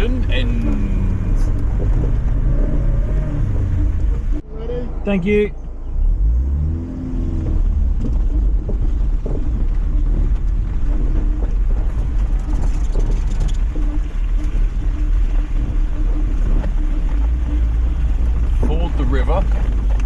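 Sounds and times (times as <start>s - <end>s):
car engine low rumble: 0.0s - 20.0s.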